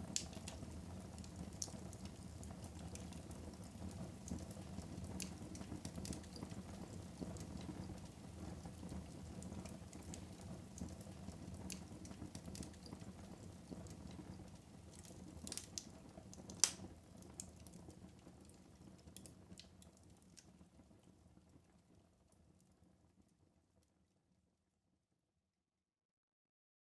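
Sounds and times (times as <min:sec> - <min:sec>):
fire flames rumbling: 0:00.0 - 0:21.0
fire crackling and popping: 0:00.0 - 0:22.5.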